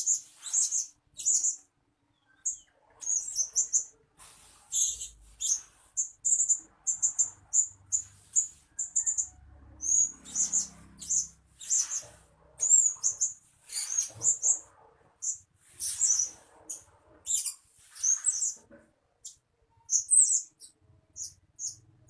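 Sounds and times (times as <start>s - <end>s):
parrot chirping: 0.0s - 4.0s, 4.6s - 18.6s, 19.2s - 22.0s.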